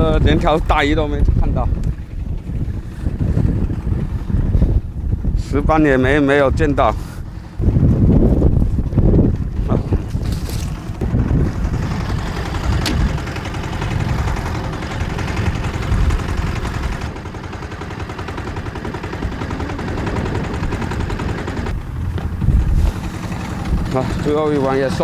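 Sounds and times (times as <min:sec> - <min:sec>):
boat engine knocking: 0:00.0 - 0:25.0
wind on microphone: 0:00.0 - 0:25.0
sharp click: 0:12.8 - 0:13.2.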